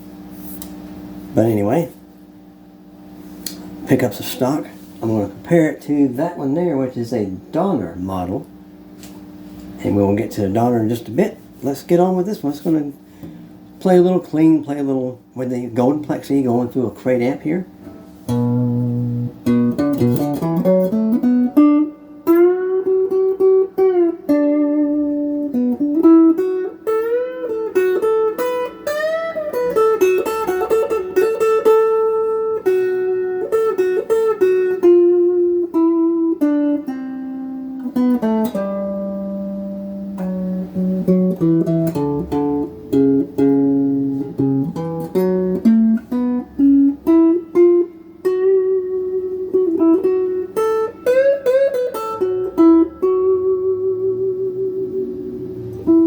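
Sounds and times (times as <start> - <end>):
clean electric guitar lead: 16.6 - 56.0.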